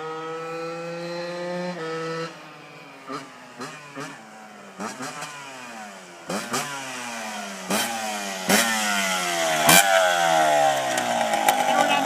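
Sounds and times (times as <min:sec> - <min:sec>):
motorbike engine revving: 0:00.0 - 0:12.0.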